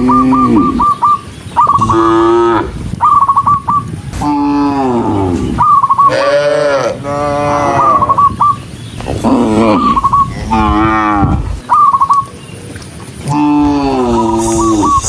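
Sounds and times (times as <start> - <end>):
cattle mooing: 1.8 - 2.8, 4.3 - 8.2, 9.2 - 11.6
short high chirping notes: 14.4 - 15.0.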